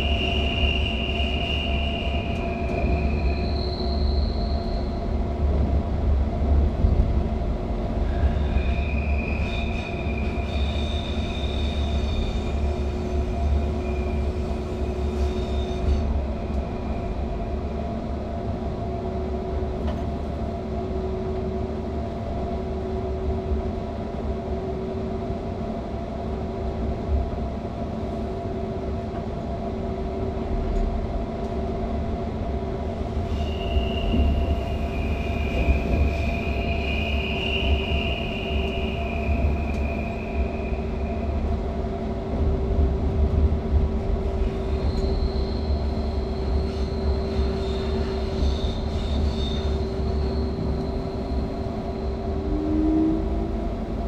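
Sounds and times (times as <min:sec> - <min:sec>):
high wheel squeal: 0:00.0 - 0:05.0, 0:08.2 - 0:16.1, 0:33.3 - 0:41.2, 0:44.4 - 0:53.2
train running rumble: 0:00.0 - 0:54.0.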